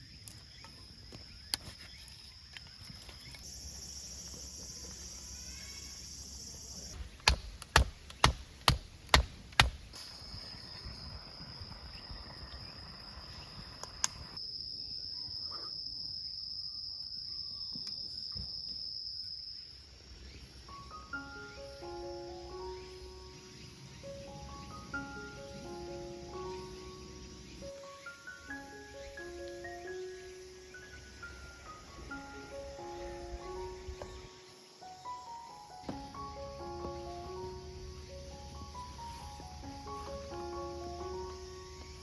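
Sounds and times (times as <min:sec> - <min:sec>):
insects chirring: 0:00.0 - 0:42.0
sharp knocks: 0:07.0 - 0:10.0.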